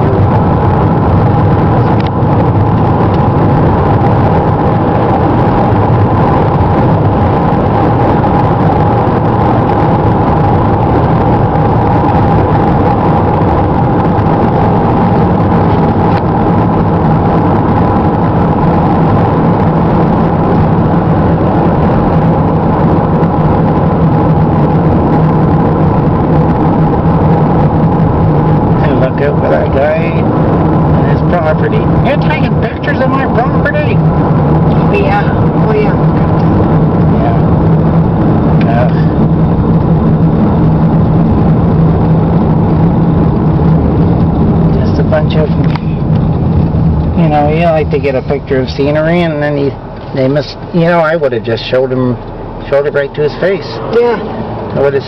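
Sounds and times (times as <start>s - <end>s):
car engine and road noise hum: 0.0s - 55.0s.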